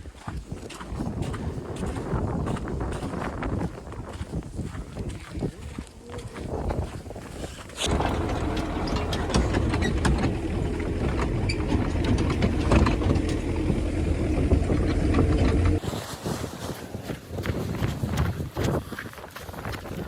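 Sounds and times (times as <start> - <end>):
machine rumbling and rattling: 7.8 - 15.8.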